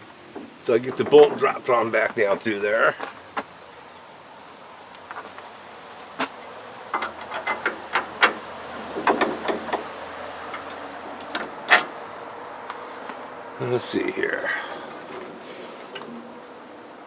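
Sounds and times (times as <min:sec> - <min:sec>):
metallic clicks and clanks: 0:06.3 - 0:11.9.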